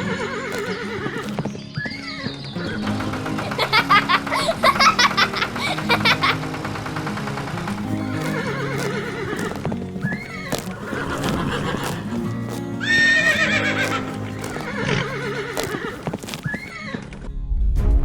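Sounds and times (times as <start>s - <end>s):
background music: 0.0s - 17.3s
animal crying out: 10.2s - 16.7s.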